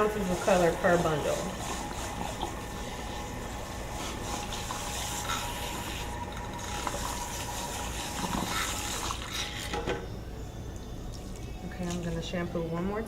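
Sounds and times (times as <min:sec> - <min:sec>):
tap water running into sink: 0:00.0 - 0:10.0.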